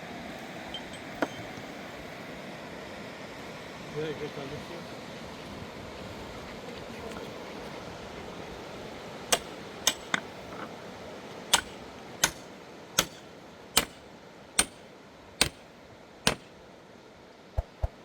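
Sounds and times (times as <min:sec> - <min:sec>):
hand tool striking hard material: 0:09.3 - 0:10.3, 0:11.5 - 0:14.0, 0:14.6 - 0:14.8, 0:15.4 - 0:15.6, 0:16.3 - 0:16.5.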